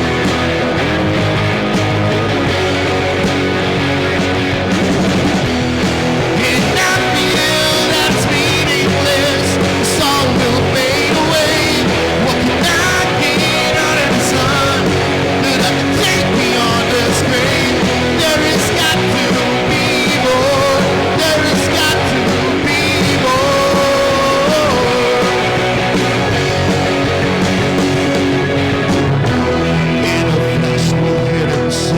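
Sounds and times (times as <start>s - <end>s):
bass guitar: 0.0s - 31.9s
drums: 0.0s - 31.9s
electric guitar: 0.0s - 31.9s
person singing: 6.3s - 26.0s, 29.6s - 31.9s.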